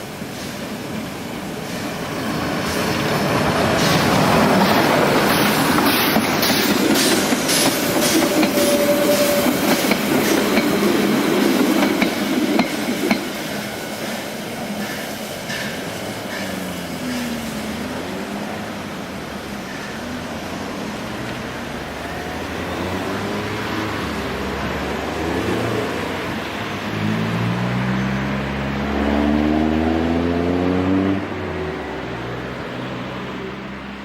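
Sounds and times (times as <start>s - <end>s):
train wheels clicking over rail joints: 0.2s - 22.1s.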